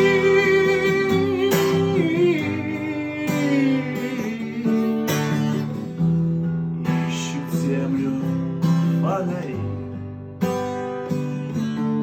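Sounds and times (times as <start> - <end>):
person singing: 0.0 - 5.6, 6.8 - 9.8
acoustic guitar strumming: 0.0 - 12.0.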